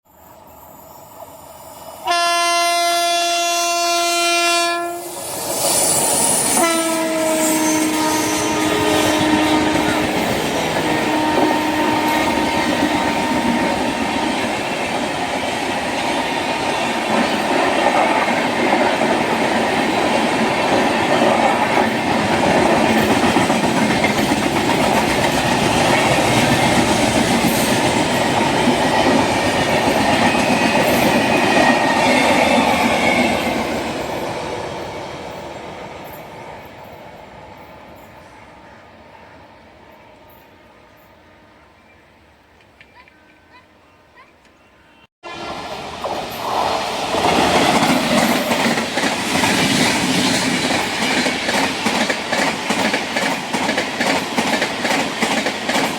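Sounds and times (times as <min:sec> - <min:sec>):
train horn: 0:02.0 - 0:05.2, 0:06.5 - 0:14.4, 0:45.2 - 0:45.9
train wheels clattering on rails: 0:08.4 - 0:37.0, 0:45.9 - 0:55.9.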